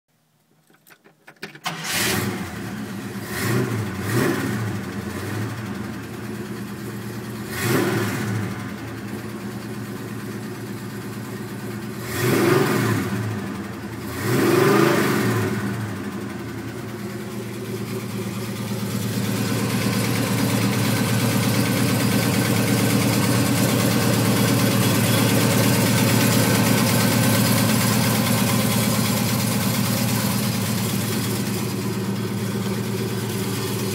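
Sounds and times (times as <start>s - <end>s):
starter motor cranking: 1.1s - 2.4s
car engine revving and idling: 1.7s - 33.9s.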